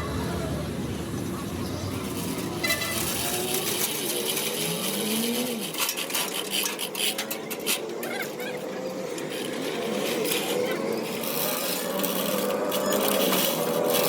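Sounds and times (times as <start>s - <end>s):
scraping and rasping with clicks: 2.0s - 14.0s.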